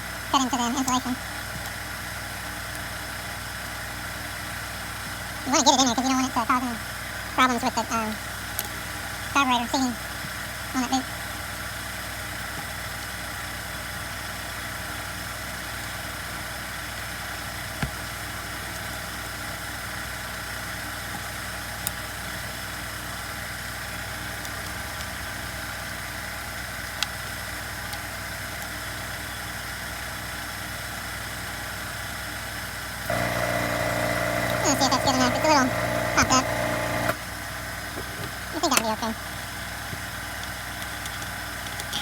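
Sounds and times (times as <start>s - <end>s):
steady background hum: 33.1s - 39.5s.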